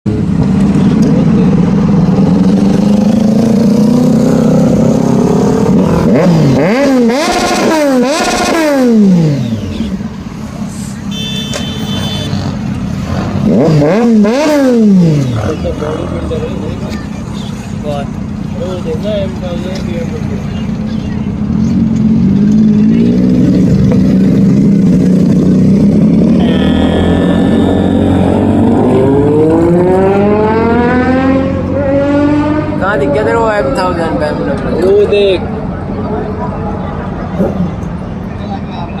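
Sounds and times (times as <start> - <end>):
motorcycle engine revving: 0.1 - 10.3, 11.1 - 34.8.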